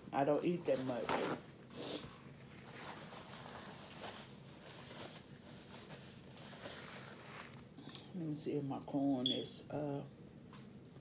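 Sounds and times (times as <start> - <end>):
faint rustling and handling: 0.3 - 7.8.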